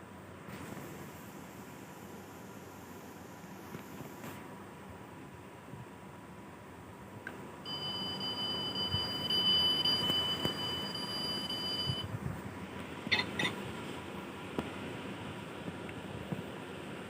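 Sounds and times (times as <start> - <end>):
high-pitched electronic buzzer tone: 7.7 - 12.0.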